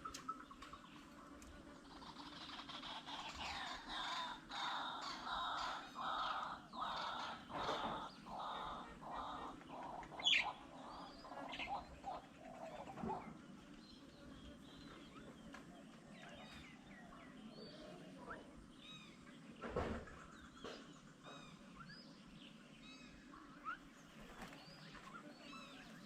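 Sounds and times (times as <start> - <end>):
birds calling: 0.0 - 26.0.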